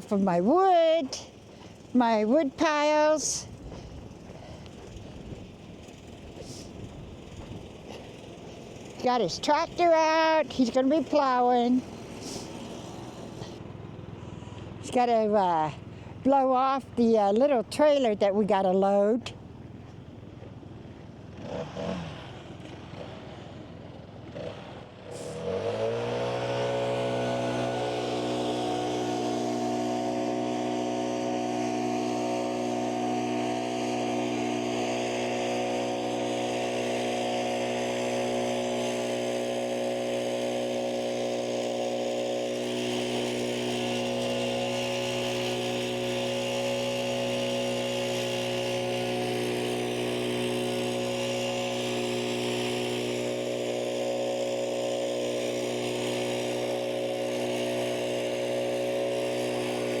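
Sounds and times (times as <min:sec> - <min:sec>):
tractor engine running: 0:00.0 - 1:00.0
wind: 0:00.0 - 1:00.0
hiss of blowing snow: 0:06.4 - 0:06.8, 0:12.1 - 0:13.6, 0:25.0 - 0:26.1.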